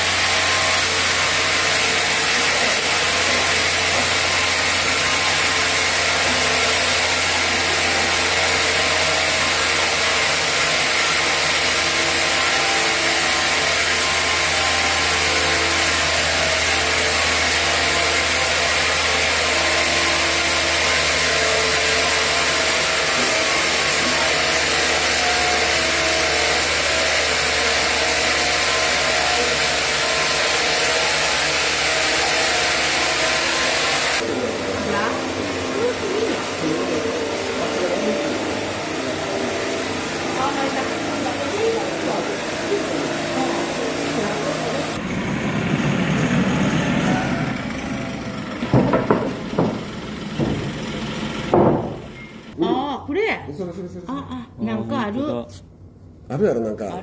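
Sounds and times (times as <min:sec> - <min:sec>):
saw cutting through log: 0:00.0 - 0:52.5.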